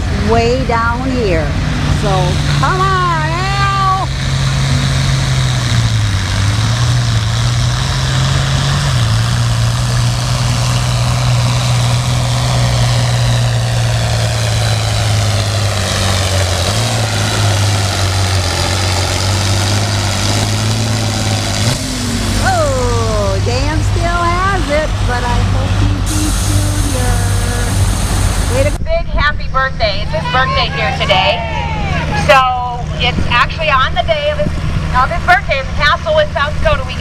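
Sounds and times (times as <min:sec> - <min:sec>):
tractor engine running under load: 0:00.0 - 0:28.8.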